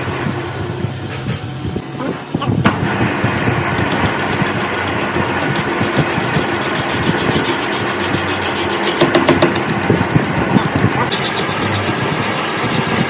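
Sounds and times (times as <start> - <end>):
engine running with ticking rattle: 0.0 - 13.0.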